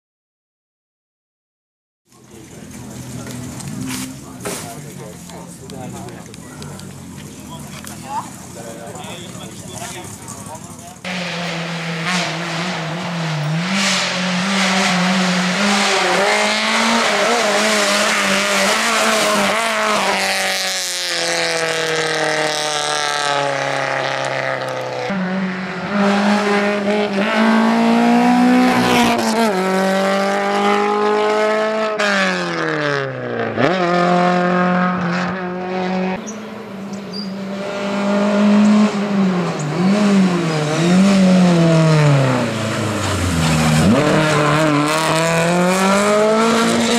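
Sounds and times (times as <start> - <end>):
rally car engine revving: 2.2 - 46.9.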